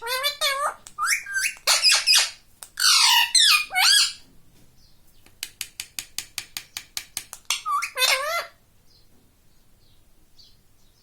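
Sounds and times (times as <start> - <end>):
parakeet squawking calls: 0.0 - 4.2, 7.5 - 8.6
sharp clicks: 5.3 - 7.5.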